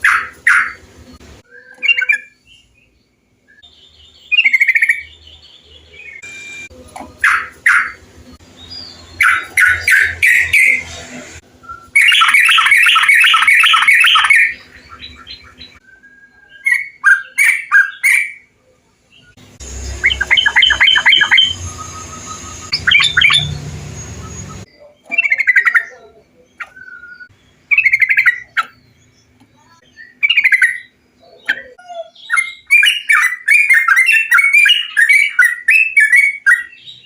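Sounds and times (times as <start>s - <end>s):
bulbuls chattering calls: 9.0s - 11.4s, 19.6s - 27.1s.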